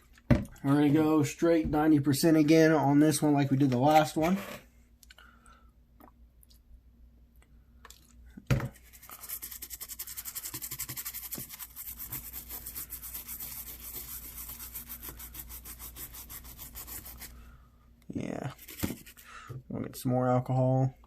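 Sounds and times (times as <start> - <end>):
brisk scrubbing on circuit board: 8.9 - 17.4.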